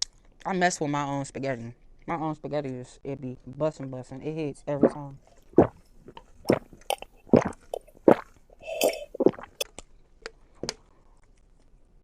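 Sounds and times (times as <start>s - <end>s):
person chewing food: 4.8s - 9.6s.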